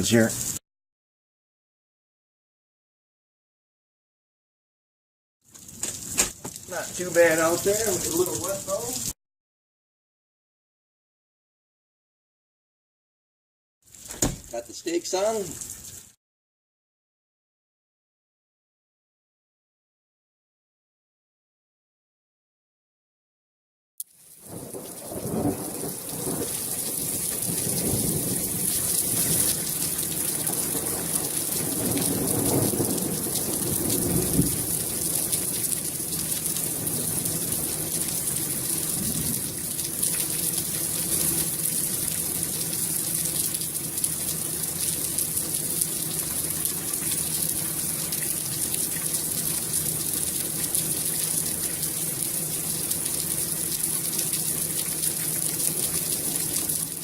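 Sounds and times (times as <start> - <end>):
heavy rain falling: 5.5 - 9.2, 24.2 - 57.0
thunder rumbling: 24.5 - 42.4.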